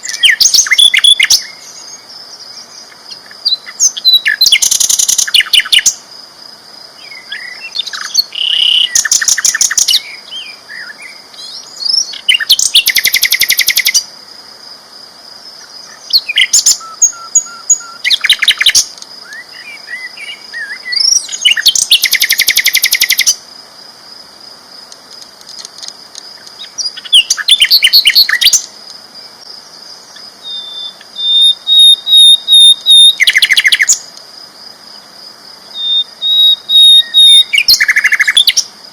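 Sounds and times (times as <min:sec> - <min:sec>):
bird chirps: 0:00.0 - 0:06.0, 0:07.0 - 0:14.1, 0:15.6 - 0:23.4, 0:26.4 - 0:29.4, 0:30.1 - 0:34.1, 0:35.7 - 0:38.7
bird singing rattling trills: 0:00.0 - 0:06.0, 0:07.0 - 0:14.0, 0:15.6 - 0:23.4, 0:26.3 - 0:29.4, 0:30.1 - 0:34.0, 0:35.7 - 0:38.7.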